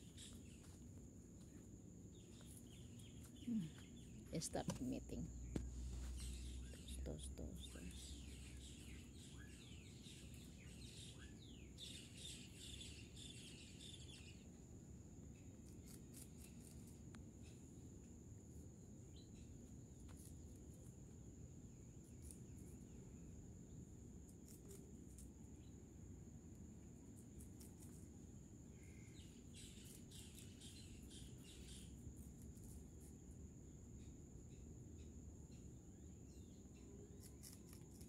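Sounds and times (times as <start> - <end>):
faint bird chirps: 0.0 - 20.9, 28.6 - 32.8, 33.8 - 38.0
low background noise: 0.0 - 38.0.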